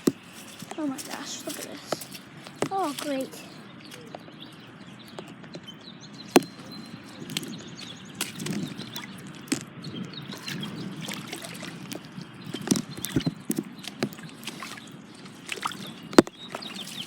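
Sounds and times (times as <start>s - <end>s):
boots splashing through puddles: 0.0s - 5.2s, 6.2s - 17.0s.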